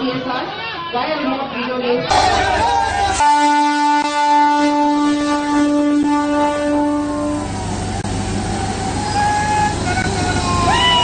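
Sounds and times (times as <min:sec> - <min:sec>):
train horn long note: 0:02.1 - 0:07.8
train rumbling along track: 0:02.1 - 0:11.0.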